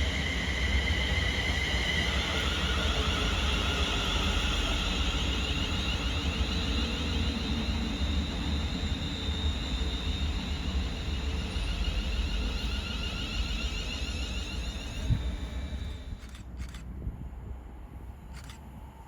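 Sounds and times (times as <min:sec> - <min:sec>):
train passing: 0:00.0 - 0:19.0
wind rumble on microphone: 0:15.0 - 0:19.0.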